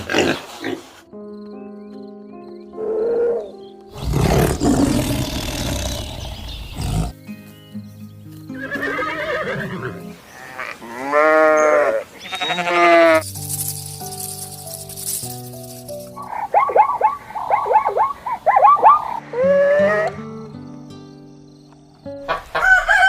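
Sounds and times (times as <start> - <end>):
background music: 0.0 - 23.0
animal calls of repeated notes: 8.6 - 13.2, 16.2 - 20.4.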